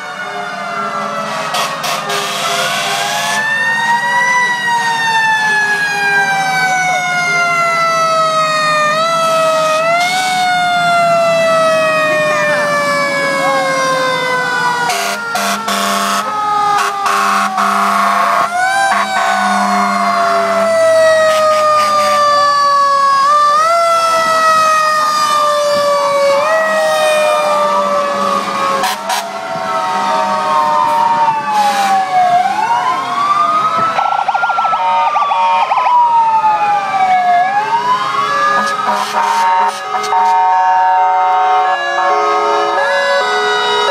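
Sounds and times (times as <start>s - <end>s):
fire truck siren wailing: 0.0s - 43.9s
horn blasts: 1.2s - 3.4s, 14.9s - 19.9s, 28.8s - 29.4s, 38.6s - 40.6s, 41.2s - 43.9s.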